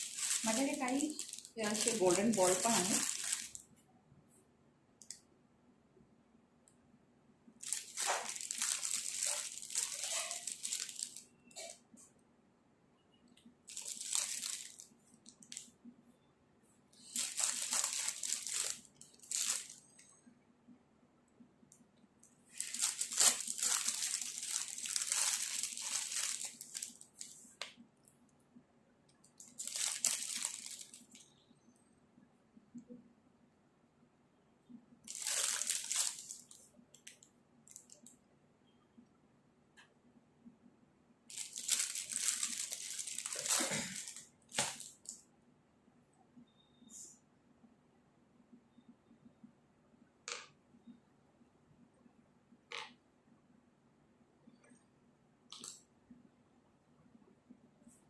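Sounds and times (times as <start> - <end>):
plastic crinkling: 0.0 - 3.7, 7.6 - 11.8, 13.7 - 15.8, 17.0 - 20.1, 22.4 - 27.7, 29.2 - 31.4, 35.0 - 38.1, 41.3 - 45.2.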